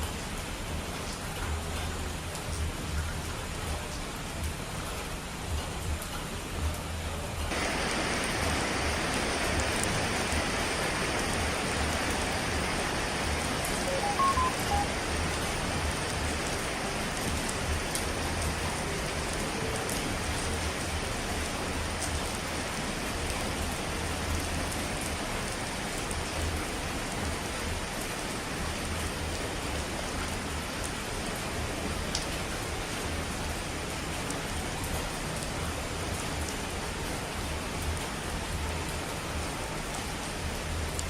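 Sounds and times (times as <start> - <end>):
falling water rushing: 7.5 - 41.0
faint short tones: 13.8 - 14.9.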